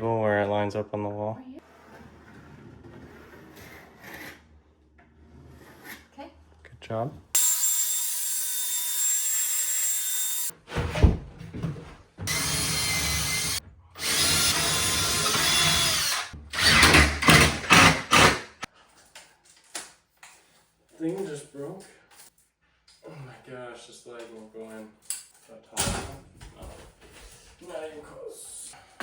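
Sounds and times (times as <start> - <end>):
power drill running: 7.4 - 10.5, 12.3 - 18.7.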